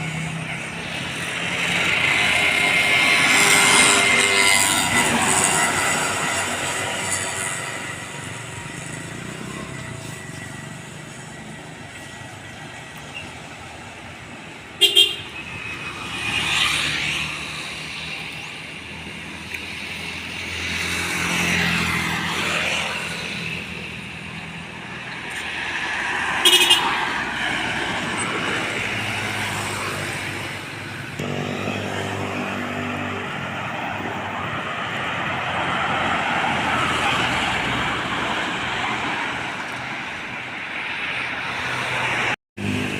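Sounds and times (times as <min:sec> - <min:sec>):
road traffic passing: 0:00.0 - 0:42.9
vehicle horn blasts: 0:14.8 - 0:15.4, 0:26.4 - 0:26.9.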